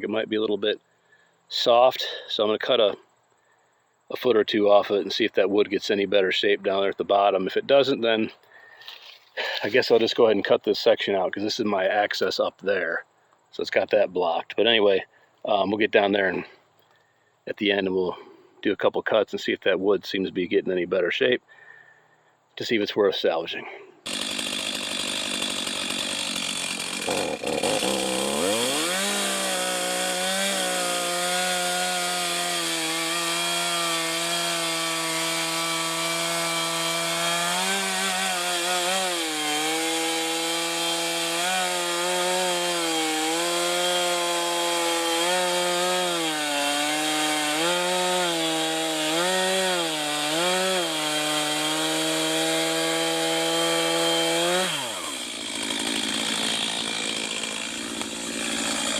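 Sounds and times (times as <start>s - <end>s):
chainsaw cutting log: 24.0s - 58.9s.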